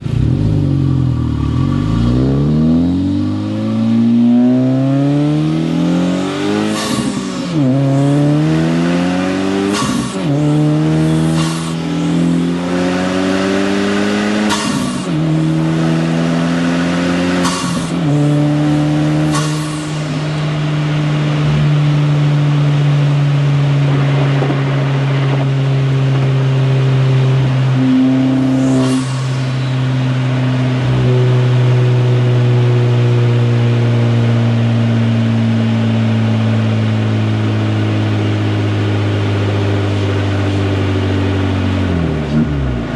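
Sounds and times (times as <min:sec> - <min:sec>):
car engine accelerating through gears: 0:00.0 - 0:42.9.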